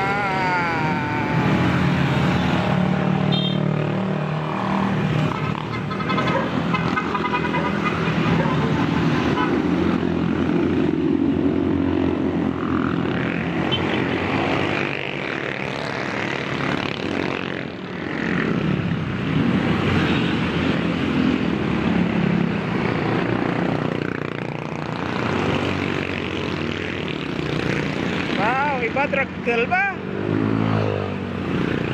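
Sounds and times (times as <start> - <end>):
motorcycle engines revving: 0.0 - 31.9
road and wind noise: 0.0 - 31.9.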